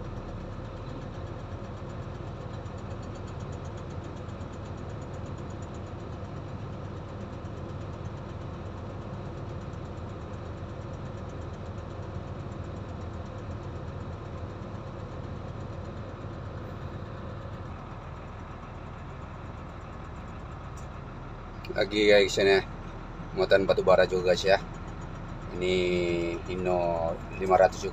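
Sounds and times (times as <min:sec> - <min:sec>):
diesel engine droning: 0:00.0 - 0:27.9.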